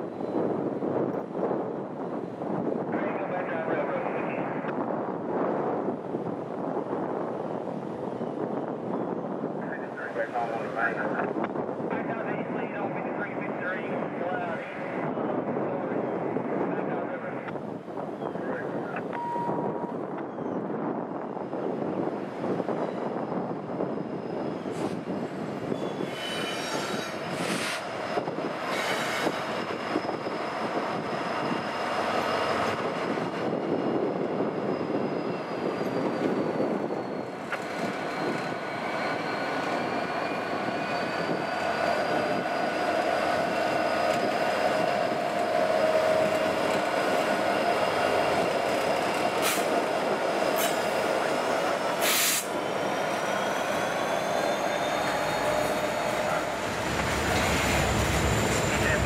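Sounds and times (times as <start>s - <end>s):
wheels squealing: 24.0s - 59.0s.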